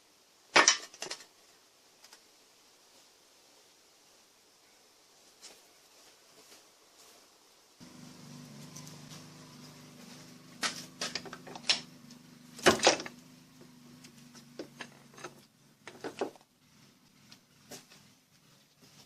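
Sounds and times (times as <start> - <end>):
low electrical hum: 7.6 - 19.0
handling clicks and knocks: 10.6 - 16.4.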